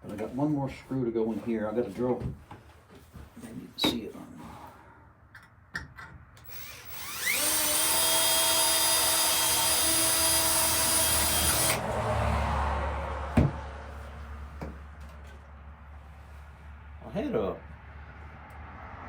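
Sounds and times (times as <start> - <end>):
power drill whining: 6.4 - 11.8.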